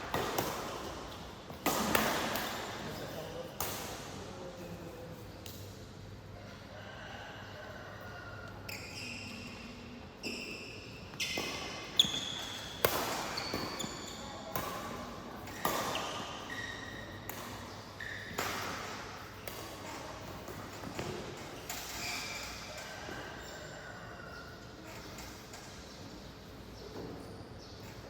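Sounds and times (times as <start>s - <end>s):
racket hitting shuttlecock: 0.0s - 2.9s, 11.3s - 16.6s, 17.2s - 22.6s
shoe squeaks: 8.6s - 14.5s, 15.5s - 19.8s, 21.6s - 23.8s.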